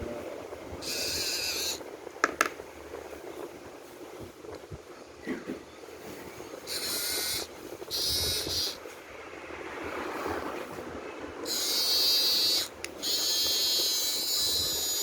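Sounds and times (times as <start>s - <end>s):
toy electric motor whirring: 0.8s - 1.8s, 6.7s - 8.8s, 11.4s - 15.0s.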